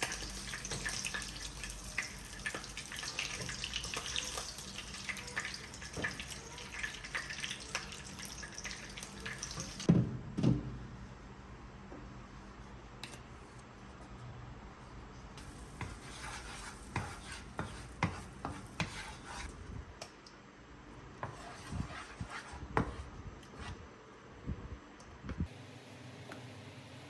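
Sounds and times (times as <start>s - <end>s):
rubbing of kitchen items: 15.4s - 19.6s, 21.2s - 23.8s.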